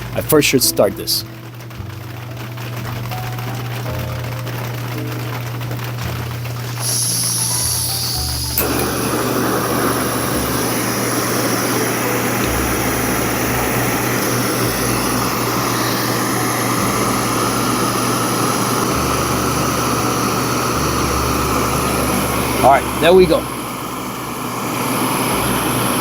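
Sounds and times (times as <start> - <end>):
gas burner hissing: 0.0 - 26.0
gas stove ignition click: 6.9 - 17.1.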